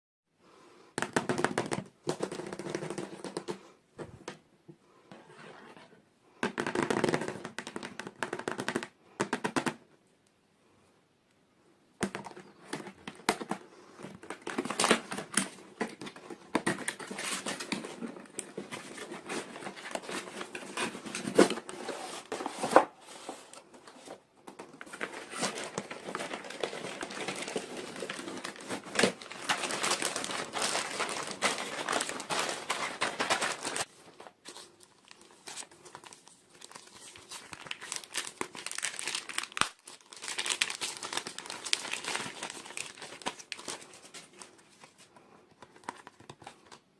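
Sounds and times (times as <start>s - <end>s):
packaging crinkling and tearing: 14.2s - 22.7s, 24.8s - 44.9s.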